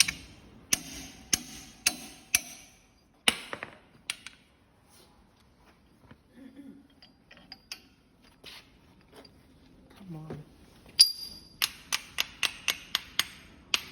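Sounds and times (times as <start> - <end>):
hard metal strikes ringing: 0.0 - 3.6
metal parts clicking and clinking: 6.9 - 8.4, 11.0 - 13.9.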